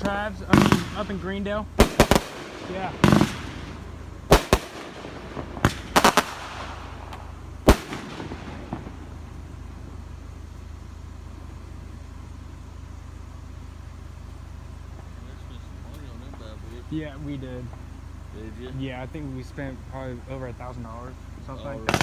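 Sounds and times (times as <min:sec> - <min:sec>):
fireworks banging: 0:00.0 - 0:12.2, 0:21.8 - 0:22.0
steady low hum: 0:00.0 - 0:22.0.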